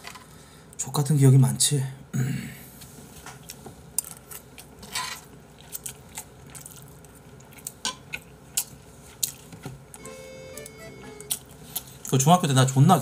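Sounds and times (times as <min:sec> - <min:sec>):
person chewing and biting: 0:05.6 - 0:09.5.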